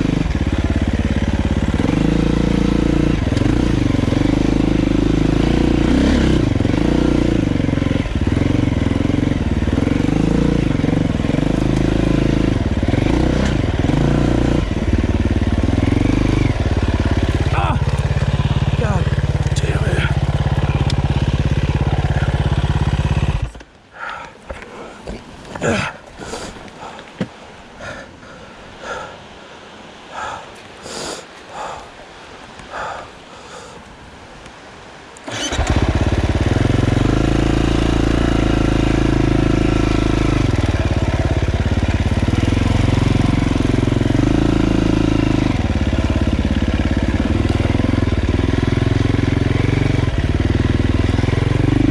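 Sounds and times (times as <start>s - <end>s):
dirt bike engine revving: 0.0s - 23.6s, 35.2s - 51.9s
person breathing hard: 23.9s - 27.2s, 27.8s - 29.3s, 30.1s - 32.0s, 32.6s - 33.9s.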